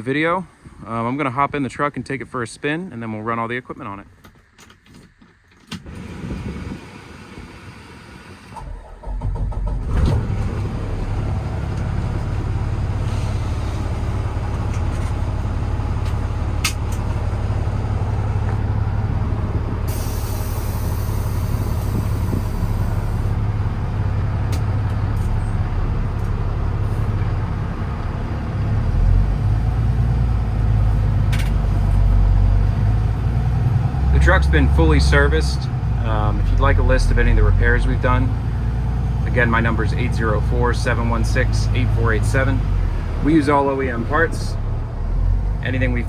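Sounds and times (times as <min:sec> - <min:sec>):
diesel engine running: 0:05.8 - 0:46.0
air brake hiss: 0:19.9 - 0:23.3.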